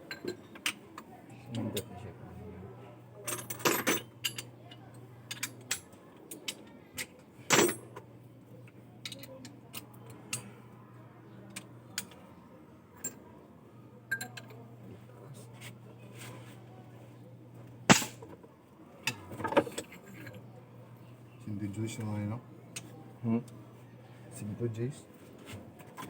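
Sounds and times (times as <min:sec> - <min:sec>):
low steady hum: 0:07.3 - 0:25.2.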